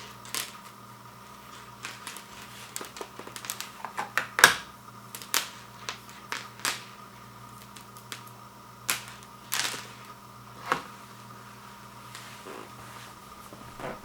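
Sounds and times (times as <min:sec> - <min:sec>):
plastic packaging clicks and crinkles: 0:00.0 - 0:07.0, 0:07.6 - 0:10.1
faint steady hum: 0:00.0 - 0:14.0.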